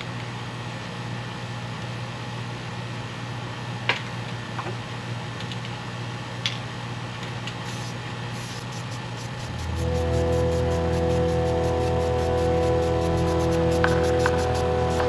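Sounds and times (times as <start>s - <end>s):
low hum with hiss: 8.5s - 15.0s.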